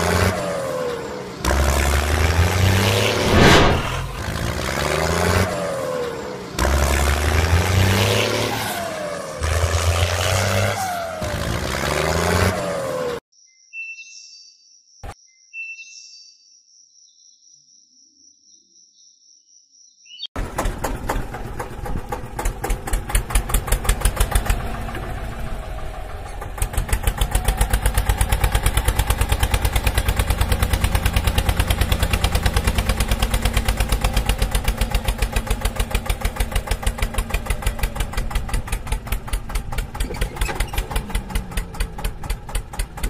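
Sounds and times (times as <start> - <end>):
engine chugging: 20.4 - 43.0.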